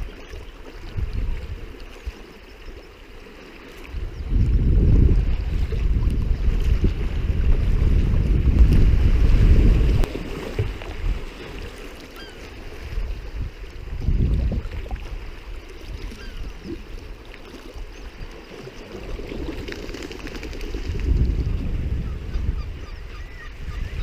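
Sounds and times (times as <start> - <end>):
water around kayak: 0.0 - 24.0
wind buffeting microphone: 0.8 - 2.2, 3.9 - 11.7, 12.7 - 17.2, 19.0 - 24.0.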